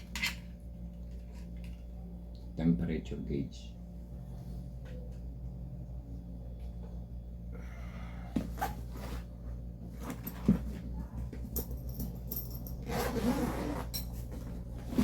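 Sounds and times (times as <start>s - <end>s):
steady low hum: 0.0s - 15.0s
tools and cases handled: 10.0s - 10.8s.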